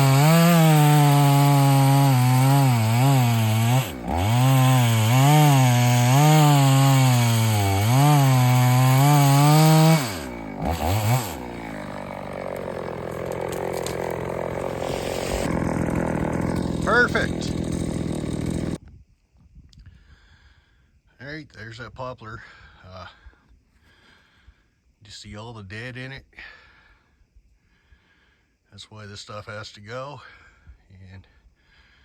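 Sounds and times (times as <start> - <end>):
chainsaw running at high speed: 0.0 - 18.8.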